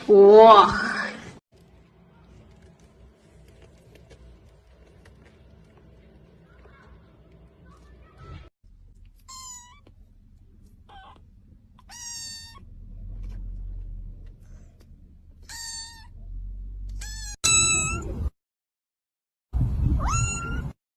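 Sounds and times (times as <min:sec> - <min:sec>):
cat meowing: 0:09.2 - 0:09.9, 0:10.9 - 0:11.2, 0:11.8 - 0:12.6, 0:15.4 - 0:16.1.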